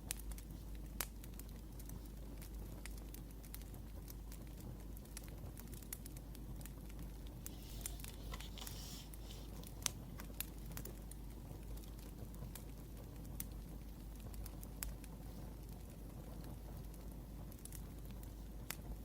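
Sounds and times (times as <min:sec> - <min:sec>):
low steady rumble: 0:00.0 - 0:19.0
wood fire crackling: 0:00.0 - 0:19.0
soft hissing rustle: 0:06.0 - 0:16.1.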